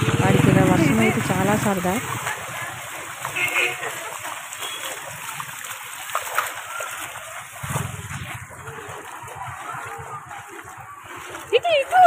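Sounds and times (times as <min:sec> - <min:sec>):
footsteps splashing through water: 0:00.0 - 0:12.0.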